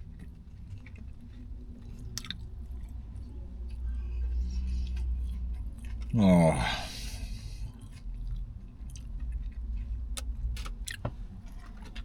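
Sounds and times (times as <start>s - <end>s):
chewing sandwich: 0.0s - 12.0s.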